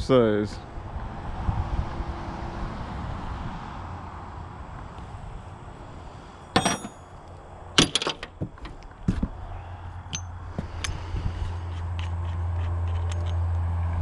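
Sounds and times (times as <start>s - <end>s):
metal tools clinking: 6.6s - 8.8s, 10.1s - 11.1s, 12.0s - 13.4s.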